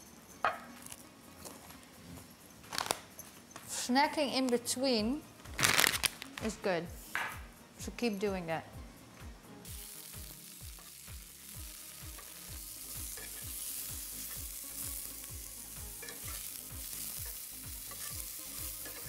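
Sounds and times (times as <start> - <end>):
carrots sizzling in a pan: 9.6 - 19.0
spatula turning food: 9.7 - 19.0.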